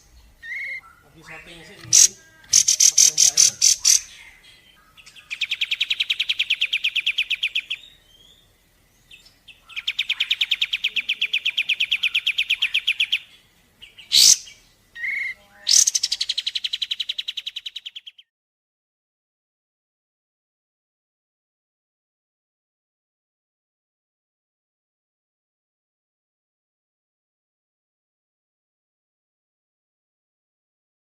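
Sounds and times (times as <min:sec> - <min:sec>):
bird trills: 0:00.0 - 0:08.5, 0:09.1 - 0:18.2.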